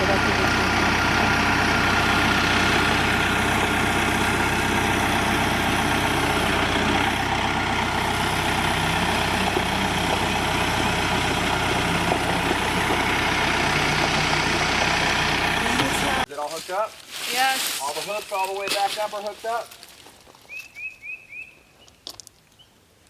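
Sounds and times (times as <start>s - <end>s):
tractor engine idling: 0.0s - 16.3s.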